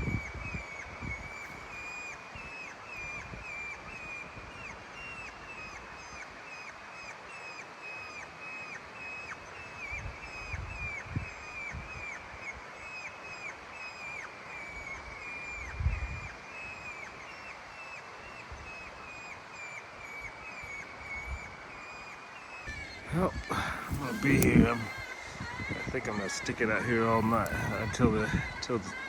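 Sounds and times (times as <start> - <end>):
short high chirping calls: 22.7 - 25.1.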